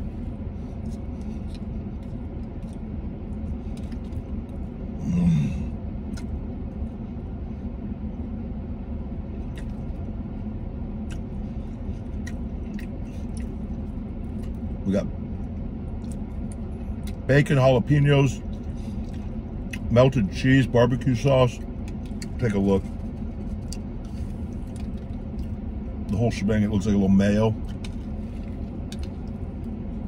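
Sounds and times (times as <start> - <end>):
man chewing food: 0.0 - 17.3, 18.4 - 19.9, 21.2 - 26.2, 27.5 - 30.0
low rumble in car cabin: 0.0 - 30.0
short low moan: 4.9 - 5.9.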